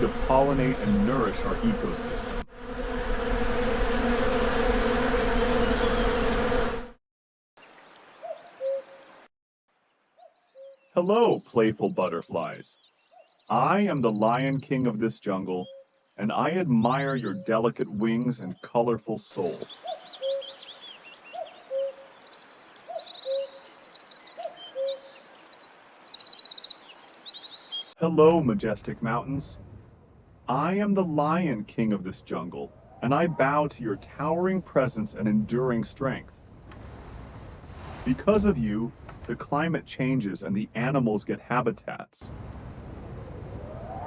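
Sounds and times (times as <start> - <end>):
bees buzzing: 0.0 - 6.9
bird chirps: 7.6 - 28.0
hooting call: 19.4 - 25.3.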